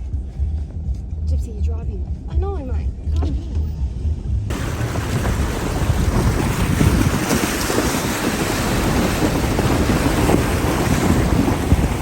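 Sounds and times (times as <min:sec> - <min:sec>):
low rumble: 0:00.0 - 0:12.0
vehicle churning through water: 0:04.5 - 0:12.0
wind buffeting microphone: 0:04.5 - 0:12.0.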